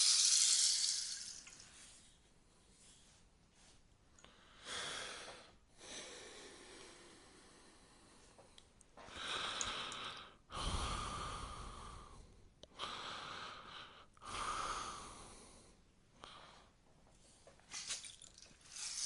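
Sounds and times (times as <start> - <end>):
rainstick beads cascading: 0.0 - 1.6, 17.8 - 19.0.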